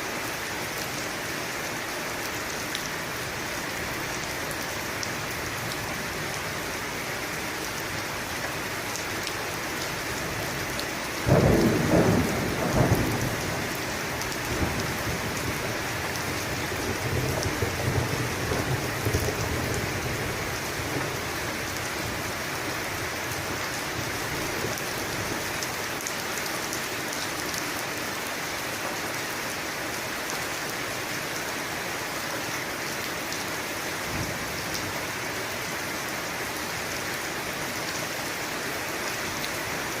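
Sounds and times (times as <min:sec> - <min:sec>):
heavy rain: 0:00.0 - 0:40.0
thunder crack and rumble: 0:11.3 - 0:15.6.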